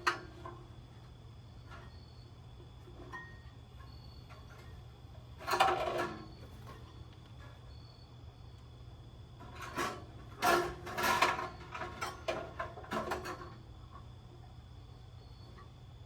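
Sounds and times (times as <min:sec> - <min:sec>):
metal grill parts clattering: 0:05.4 - 0:06.9, 0:09.4 - 0:13.6.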